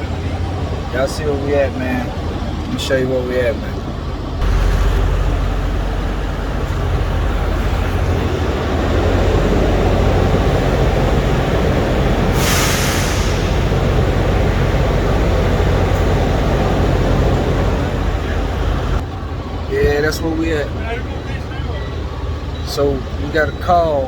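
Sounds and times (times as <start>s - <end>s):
diesel truck engine rumbling: 0.0s - 24.0s
air brakes hissing: 10.2s - 16.5s.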